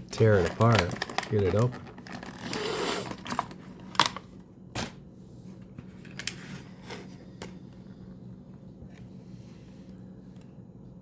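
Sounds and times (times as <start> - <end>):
packaging rustling scrape: 0.2 - 4.2.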